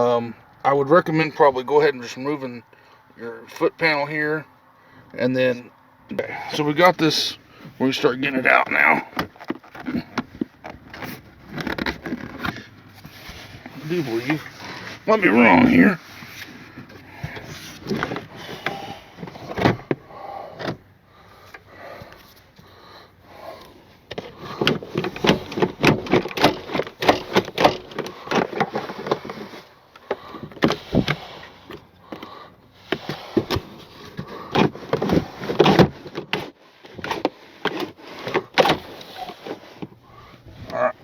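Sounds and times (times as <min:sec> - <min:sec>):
plastic trim panel knocks and scrapes: 0:24.1 - 0:31.2.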